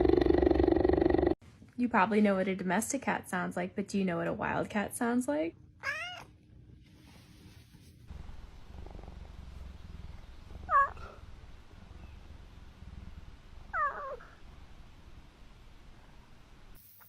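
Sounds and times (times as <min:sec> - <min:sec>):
wild cat purring: 0:00.0 - 0:01.4, 0:08.2 - 0:11.8
wild cat meowing: 0:05.8 - 0:06.3, 0:10.7 - 0:11.2, 0:13.7 - 0:14.4.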